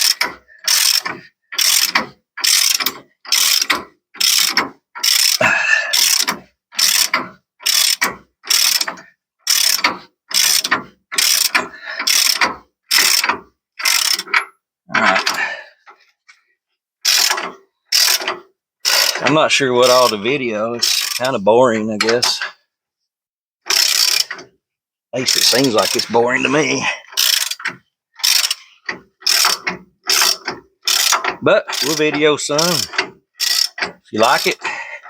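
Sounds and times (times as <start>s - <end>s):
ratchet wrench clicking: 0.0s - 14.5s, 17.0s - 20.2s, 20.8s - 21.3s, 23.6s - 24.5s, 25.3s - 26.1s, 27.1s - 34.7s.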